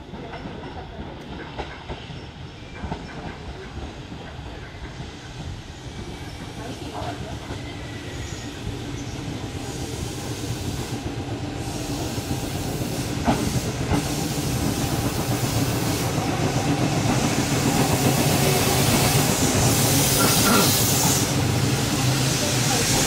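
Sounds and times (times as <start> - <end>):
hiss: 4.7 - 23.0
electric train running noise: 7.0 - 23.0.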